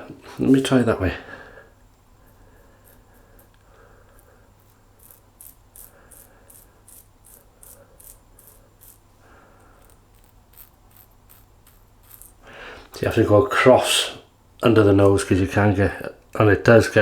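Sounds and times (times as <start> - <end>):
razor scraping stubble: 2.3 - 13.0.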